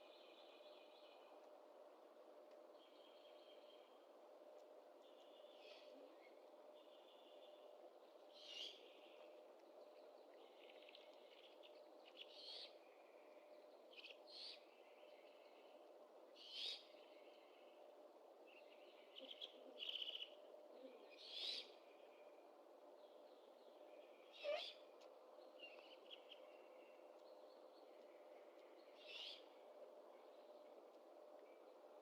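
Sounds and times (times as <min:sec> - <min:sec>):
faint steady hum: 0:00.0 - 0:32.0
owls calling: 0:24.4 - 0:24.8.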